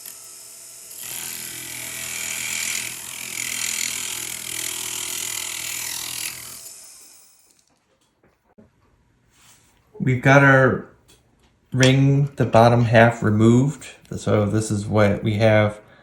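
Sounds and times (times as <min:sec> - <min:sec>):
rotary tool motor hum: 0:00.0 - 0:07.8.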